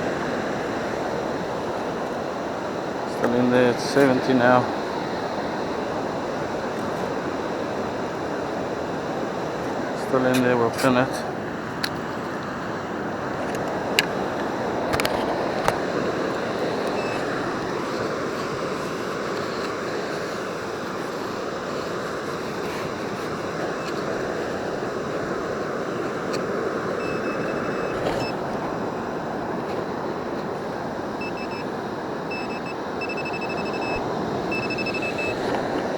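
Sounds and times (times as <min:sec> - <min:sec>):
surf washing on beach: 0:00.0 - 0:35.9
wind: 0:00.0 - 0:35.9
metal detector beeps: 0:16.9 - 0:17.3, 0:27.0 - 0:28.4, 0:31.2 - 0:35.6.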